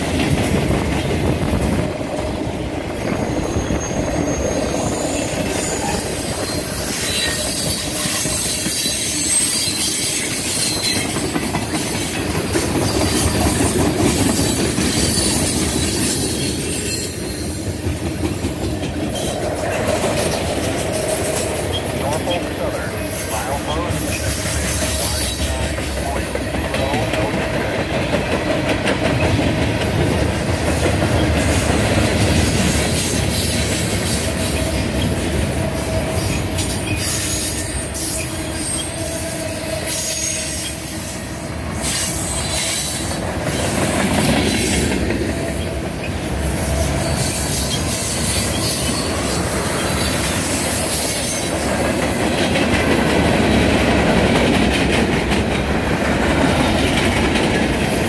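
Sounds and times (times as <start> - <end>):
freight train wheels clattering: 0.0 - 58.0
faint wheel squeal: 3.2 - 11.0.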